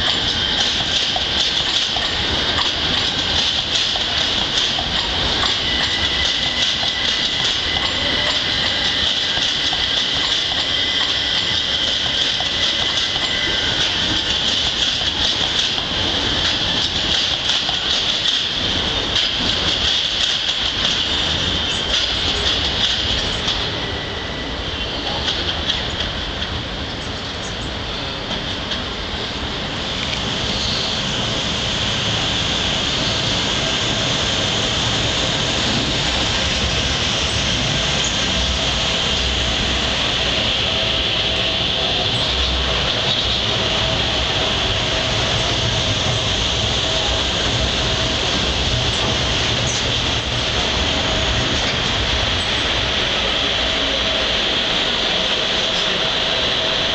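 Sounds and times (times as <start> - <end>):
wheels clicking over rail joints: 0.0 - 23.7
train rushing past: 0.0 - 56.9.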